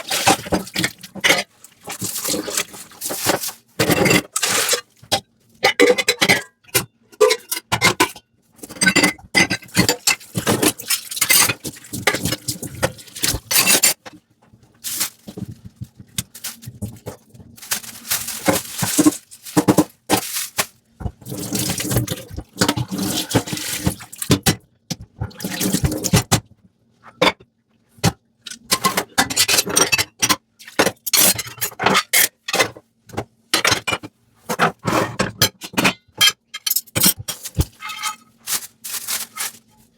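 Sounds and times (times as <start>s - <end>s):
crockery clinking and scraping: 7.2s - 14.1s, 33.6s - 39.8s.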